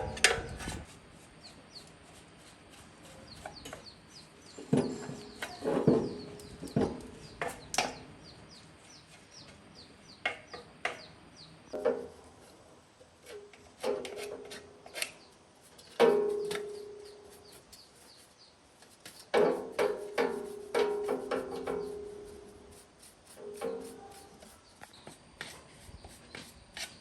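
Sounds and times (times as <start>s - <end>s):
faint bird chirps: 14.9s - 18.6s.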